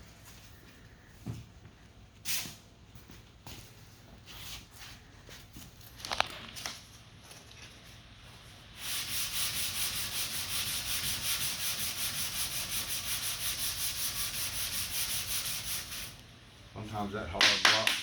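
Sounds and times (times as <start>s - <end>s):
sandpaper rubbing on primer: 8.8s - 16.2s.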